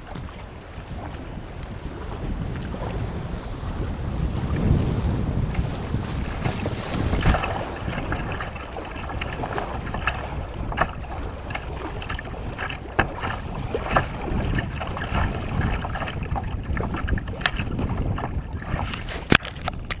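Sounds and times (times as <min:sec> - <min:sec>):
wind buffeting microphone: 0:00.0 - 0:20.0
sharp splashes or knocks: 0:05.5 - 0:20.0
river water rushing: 0:06.1 - 0:16.2.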